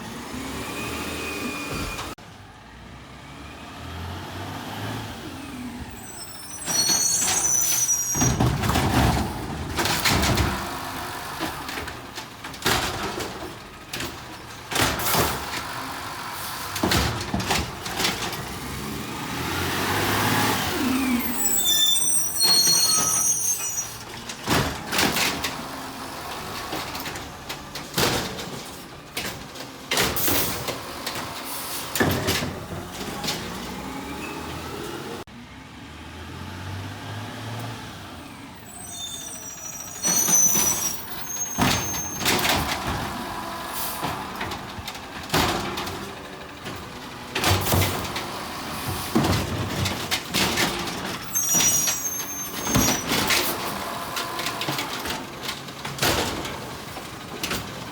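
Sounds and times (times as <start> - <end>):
garbage truck engine running: 4.3 - 57.9
metal clanks and bangs: 6.6 - 15.7, 22.2 - 34.0, 39.6 - 57.9
high hissing squeals: 38.7 - 42.2.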